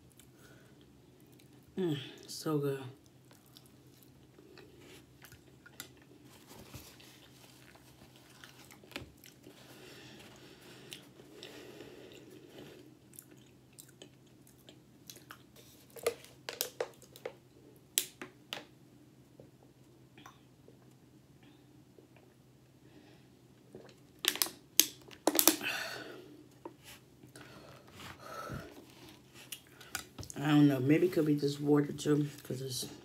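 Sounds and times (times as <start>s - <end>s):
person chewing: 3.0s - 17.4s, 23.6s - 25.7s
plastic water bottle crackling: 24.3s - 25.7s.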